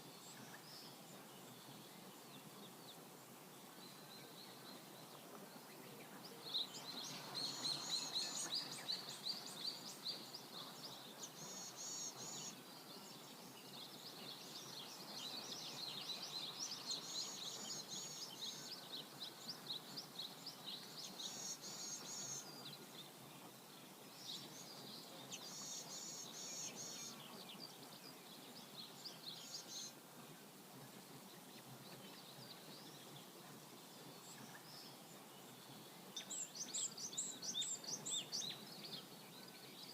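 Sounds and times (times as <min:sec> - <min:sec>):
river flowing: 0:00.0 - 0:39.9
songbirds chirping and trilling: 0:00.0 - 0:39.9.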